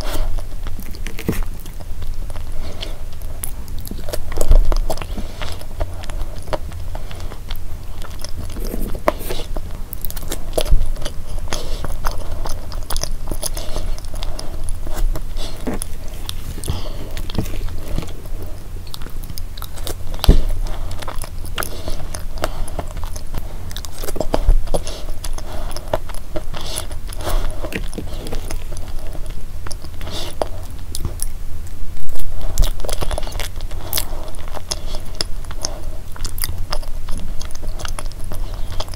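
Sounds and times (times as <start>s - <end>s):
chewing with wet mouth clicks: 0.0s - 38.9s.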